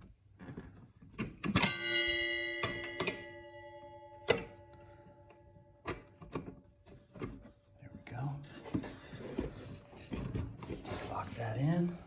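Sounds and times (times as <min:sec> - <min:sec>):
metal part clanking and ringing: 0:01.4 - 0:06.6.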